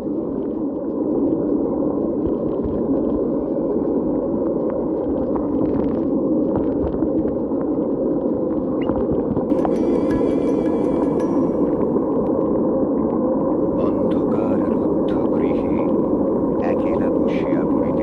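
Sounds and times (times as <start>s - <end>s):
rain and wind rushing: 9.5s - 18.0s.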